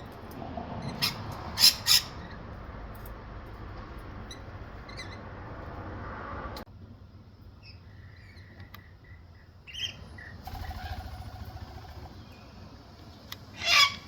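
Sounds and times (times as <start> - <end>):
wild birds chirping: 7.4 - 14.0
bird harsh call: 13.6 - 14.0.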